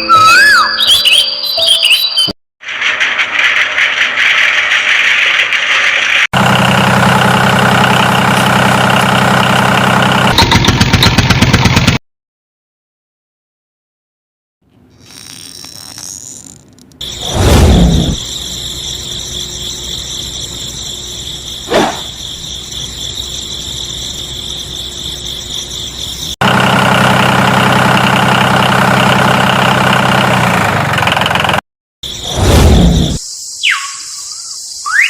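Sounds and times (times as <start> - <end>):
low engine-like drone: 17.0 - 30.3
quick swishes: 21.7 - 22.1.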